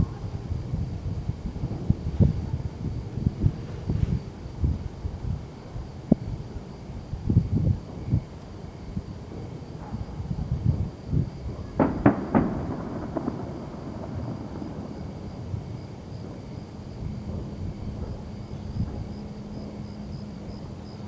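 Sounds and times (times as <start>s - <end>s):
distant fireworks booming: 9.1s - 20.2s
sharp firework bangs: 11.6s - 16.6s.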